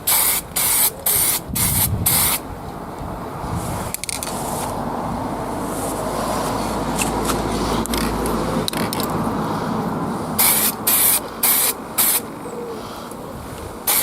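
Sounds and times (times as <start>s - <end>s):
spray paint can hissing: 0.0s - 2.4s, 10.4s - 12.3s.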